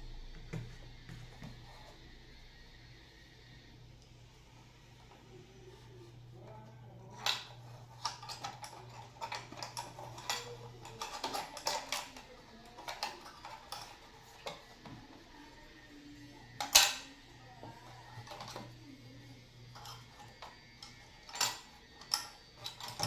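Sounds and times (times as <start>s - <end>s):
metal parts clinking: 7.2s - 14.6s, 19.8s - 23.0s.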